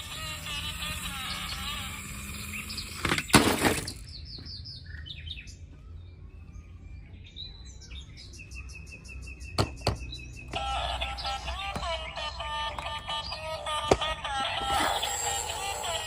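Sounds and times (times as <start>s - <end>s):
bird-like chirping: 0.5s - 16.0s.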